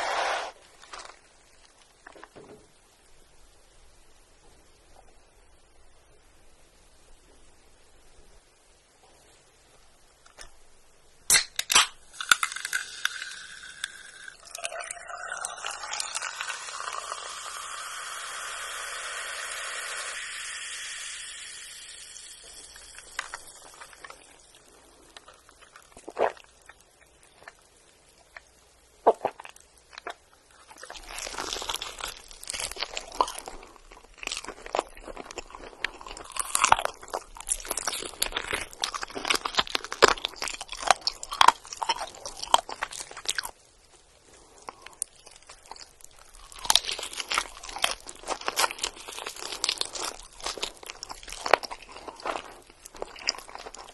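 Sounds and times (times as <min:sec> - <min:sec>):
steady hiss: 0:00.0 - 0:29.0
crunchy chewing of fried chicken: 0:22.0 - 0:43.6, 0:44.3 - 0:53.9.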